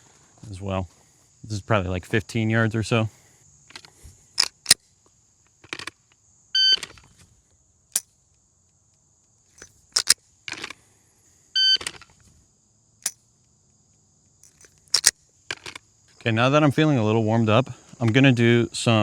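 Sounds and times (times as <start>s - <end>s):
pistol handling clicks and rattles: 3.7s - 4.8s, 9.6s - 10.8s, 13.0s - 13.2s, 14.4s - 15.8s
pistol trigger click: 9.6s - 10.2s, 14.4s - 15.2s.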